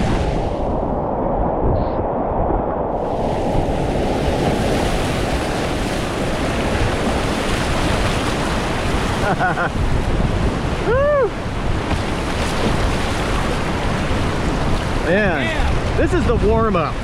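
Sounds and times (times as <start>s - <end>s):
roar of whitewater rapids: 13.5s - 16.2s.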